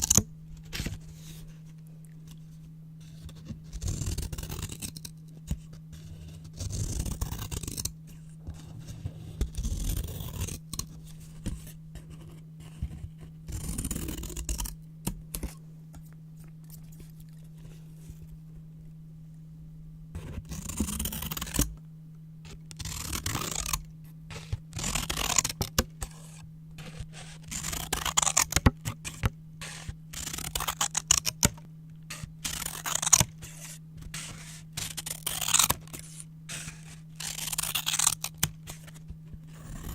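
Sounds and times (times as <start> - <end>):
faint low hum: 0.0 - 39.9
scissors cutting paper: 3.0 - 15.6, 20.2 - 21.8, 22.4 - 39.9.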